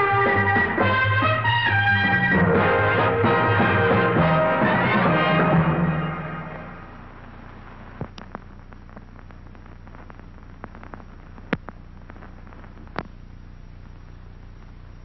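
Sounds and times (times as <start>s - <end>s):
film soundtrack hiss and hum: 0.0s - 15.0s
scattered clicks and pops: 8.0s - 15.0s.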